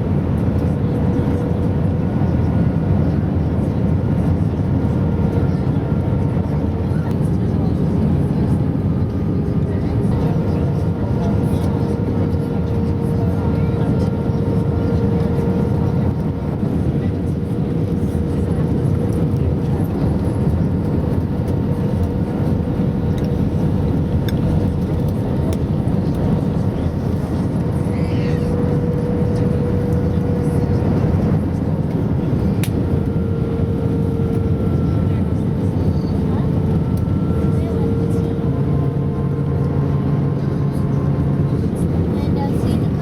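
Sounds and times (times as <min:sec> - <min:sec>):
aircraft engine and airflow rumble: 0:00.0 - 0:43.0.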